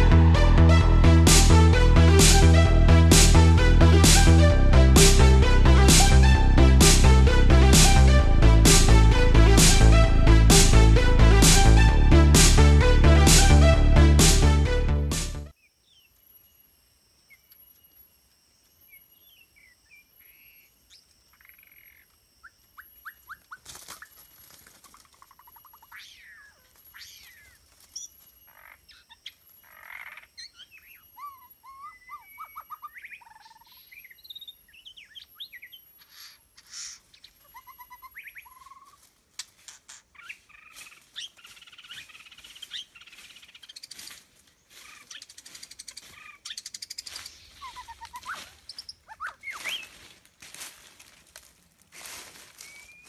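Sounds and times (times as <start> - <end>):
birds chirping: 15.6 - 50.3, 52.3 - 53.0.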